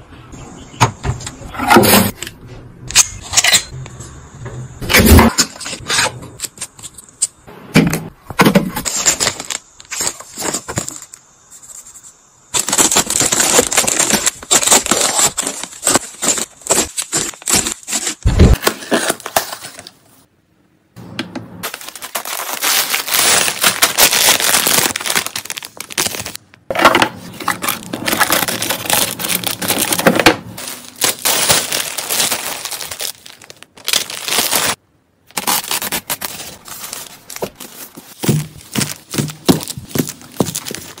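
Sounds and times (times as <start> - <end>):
plastic packaging crinkling: 8.8 - 11.8, 12.5 - 20.0, 21.6 - 41.0
plastic packaging tearing: 12.6 - 19.8, 21.6 - 26.4, 27.3 - 41.0.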